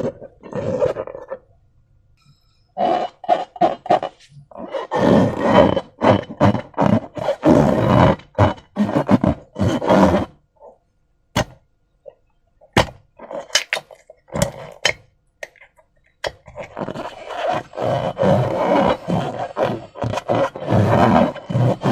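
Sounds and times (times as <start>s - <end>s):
slime squelching and crackling: 12.7s - 21.9s.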